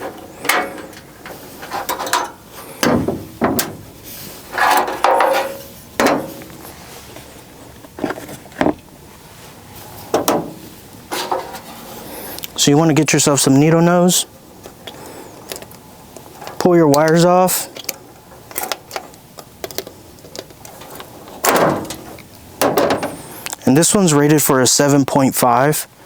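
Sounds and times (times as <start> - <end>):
metal parts clanking and scraping: 0.0 - 6.7, 10.1 - 12.1, 16.4 - 23.4
rustling: 0.0 - 12.4.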